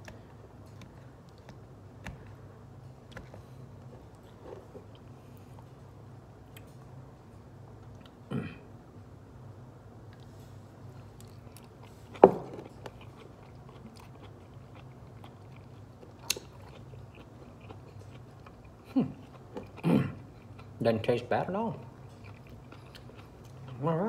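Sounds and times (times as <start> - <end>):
person chewing crunchy beans: 0.0 - 5.9, 10.2 - 21.1, 21.8 - 24.0.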